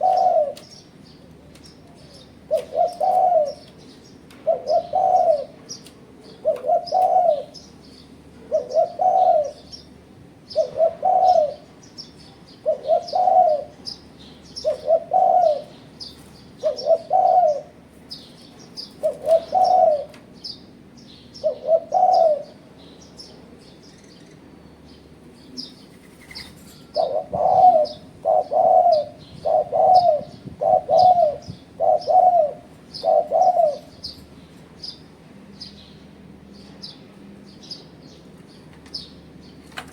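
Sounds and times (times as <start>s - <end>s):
dove cooing: 0.0s - 0.7s, 1.9s - 7.6s, 8.4s - 9.9s, 10.5s - 11.8s, 12.6s - 14.0s, 14.6s - 20.2s, 21.4s - 22.6s, 25.9s - 34.2s.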